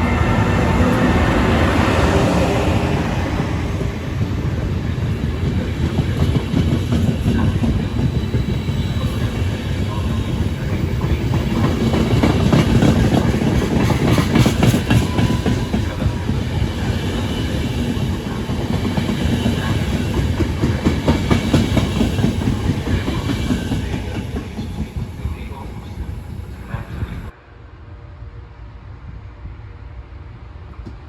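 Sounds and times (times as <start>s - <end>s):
train rumble: 0.0s - 31.0s
train wheels clattering over rail joints: 11.4s - 16.4s.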